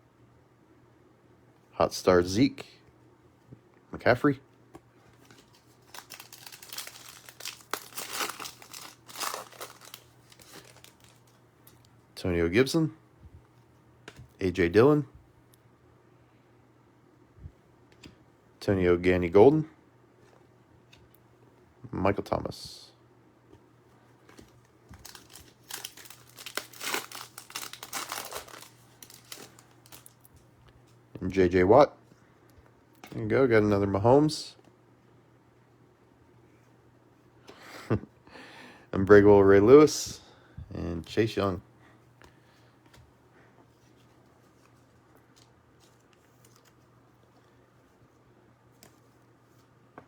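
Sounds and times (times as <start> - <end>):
wrapper crinkling: 5.2 - 11.8, 24.4 - 30.4.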